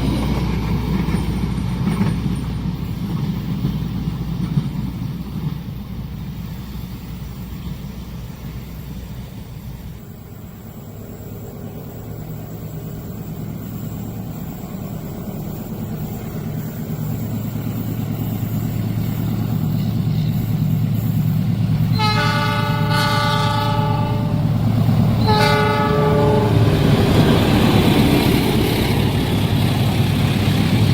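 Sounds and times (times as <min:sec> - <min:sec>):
train engine drone: 0:00.0 - 0:30.9
train horn: 0:21.9 - 0:24.6, 0:25.2 - 0:27.1.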